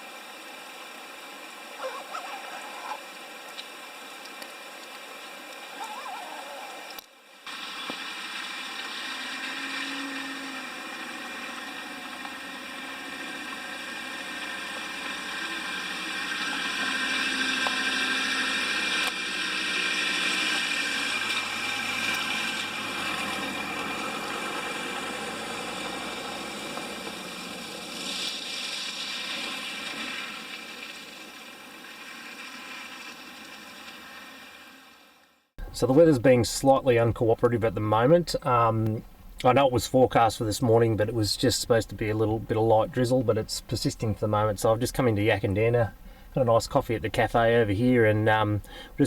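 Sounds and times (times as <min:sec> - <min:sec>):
motor running: 0:06.9 - 0:34.0.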